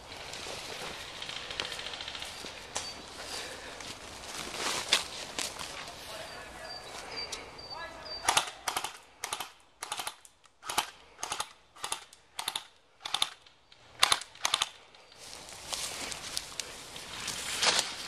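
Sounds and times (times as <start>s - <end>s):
airsoft gun shots: 8.2s - 13.4s.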